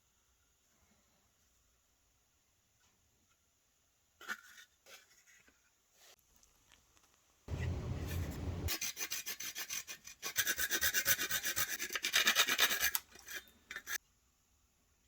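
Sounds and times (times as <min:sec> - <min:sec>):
hand sanding wood: 0:07.5 - 0:12.9.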